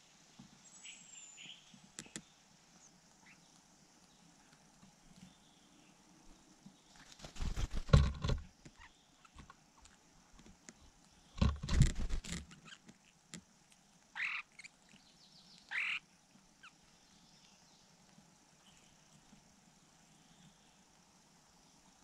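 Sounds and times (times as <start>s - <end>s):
rustling and bumping: 7.4s - 8.5s, 11.4s - 12.5s
short bird calls: 14.2s - 14.7s, 15.6s - 16.0s.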